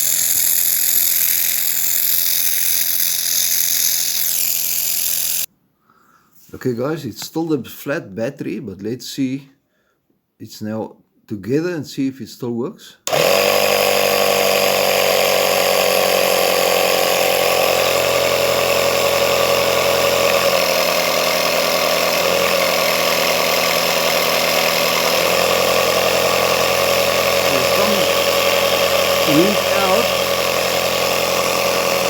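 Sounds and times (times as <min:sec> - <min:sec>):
air compressor running: 0:00.0 - 0:05.5, 0:13.1 - 0:32.0.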